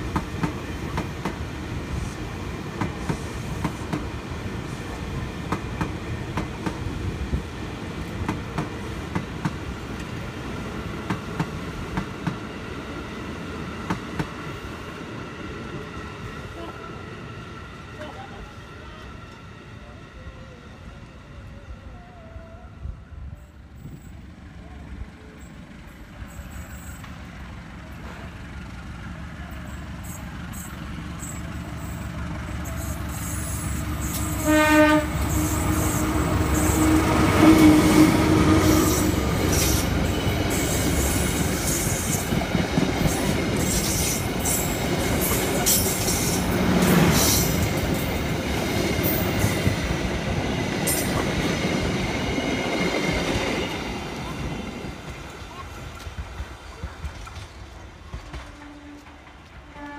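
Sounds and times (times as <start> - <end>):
train rumbling past: 0.0 - 59.9
train horn blast: 33.4 - 39.9, 58.2 - 59.9.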